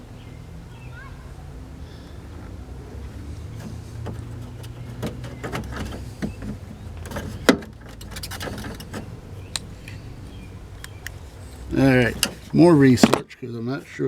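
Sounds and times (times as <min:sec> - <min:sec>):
clicks and knocks of hand work: 0:03.6 - 0:09.7.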